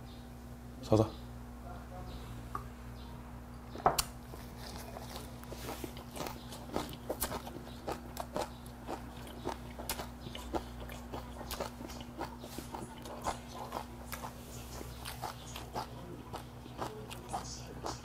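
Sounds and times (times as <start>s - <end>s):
man chewing food: 3.7s - 18.0s.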